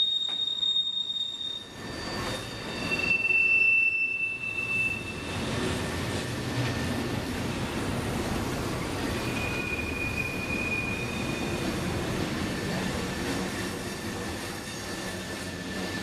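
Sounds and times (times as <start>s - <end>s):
wheel flange squeal: 0.0s - 5.7s, 9.0s - 16.0s
steel wheels rumbling on rail: 0.1s - 16.0s.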